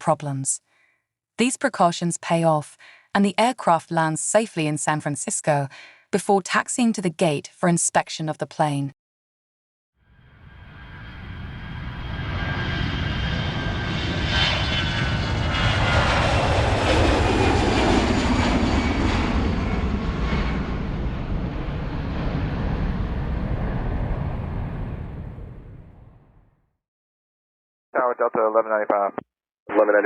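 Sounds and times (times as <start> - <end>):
airplane flying overhead: 10.0 - 26.4.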